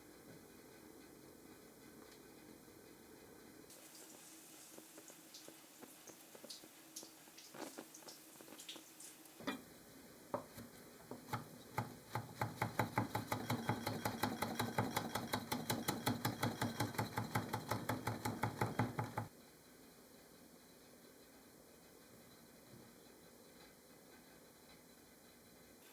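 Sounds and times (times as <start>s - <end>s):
knife chopping on cutting board: 10.4s - 19.3s.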